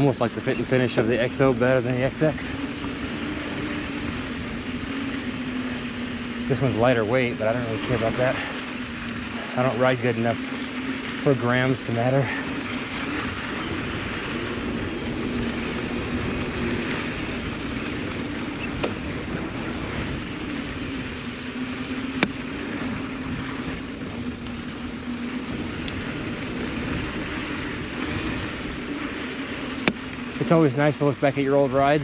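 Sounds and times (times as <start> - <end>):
bike rolling on dirt: 0.0 - 32.0
sharp clicks: 20.0 - 23.0, 25.6 - 30.3.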